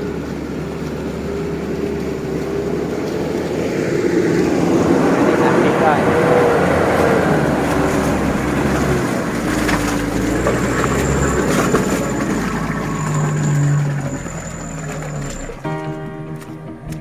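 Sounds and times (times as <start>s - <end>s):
pickup truck engine revving: 0.0s - 17.0s.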